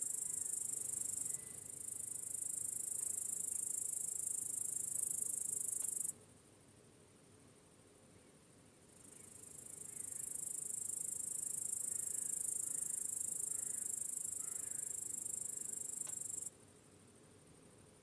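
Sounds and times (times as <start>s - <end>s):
high-pitched insect trill: 0.0s - 6.1s, 9.0s - 16.5s
faint background hiss: 0.0s - 18.0s.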